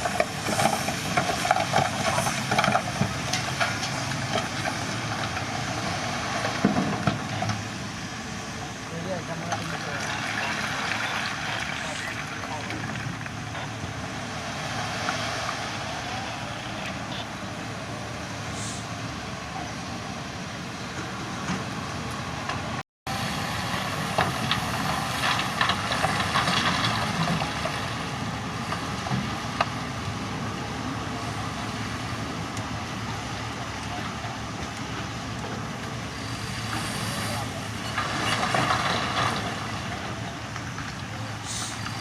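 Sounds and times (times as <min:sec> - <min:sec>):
construction machinery engine drone: 0:00.0 - 0:42.0
machinery knocks and clatter: 0:06.4 - 0:07.7, 0:24.0 - 0:27.9.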